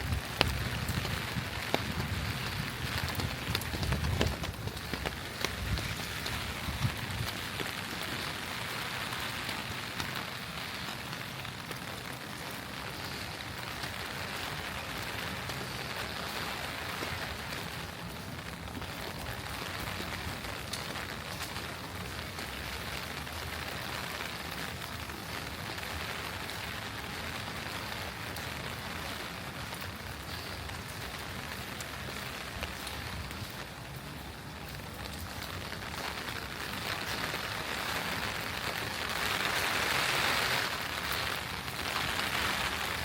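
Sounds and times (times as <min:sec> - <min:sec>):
steady rain falling: 0:00.0 - 0:43.0.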